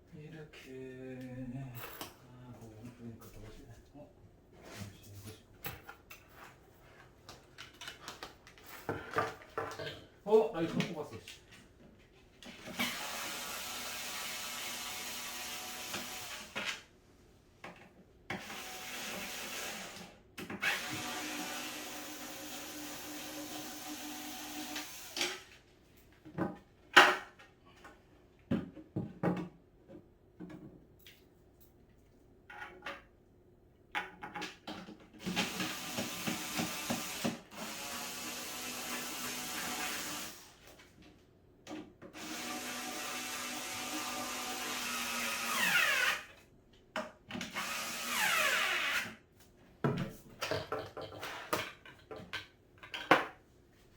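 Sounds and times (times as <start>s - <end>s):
electric drill driving fasteners: 12.6s - 16.8s, 18.3s - 25.4s, 35.2s - 40.7s, 42.1s - 46.4s, 47.4s - 49.2s.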